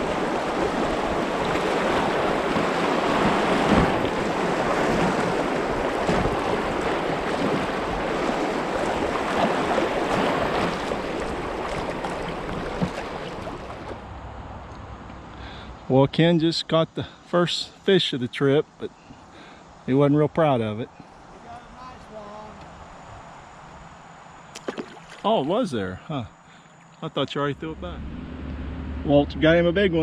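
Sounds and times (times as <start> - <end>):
knocks and splashes: 0.0 - 14.0, 24.5 - 25.6
river water rushing over rapids: 0.0 - 14.0.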